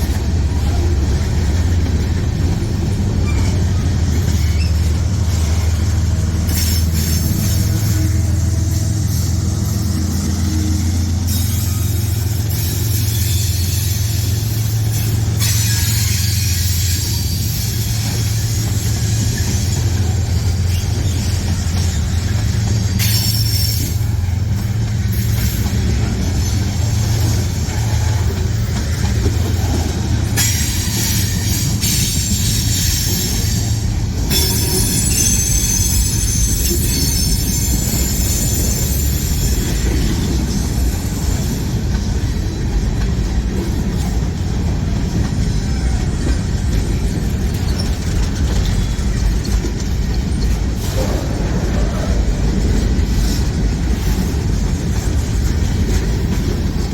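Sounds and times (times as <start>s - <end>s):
freight train wheels rumbling: 0.0s - 56.9s
wheel squeal: 2.9s - 5.7s, 11.2s - 24.5s, 26.2s - 42.8s, 45.1s - 51.8s.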